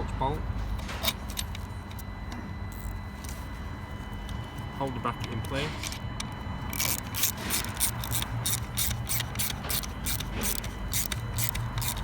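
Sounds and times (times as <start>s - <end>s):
ratchet wrench clicking: 6.7s - 12.0s.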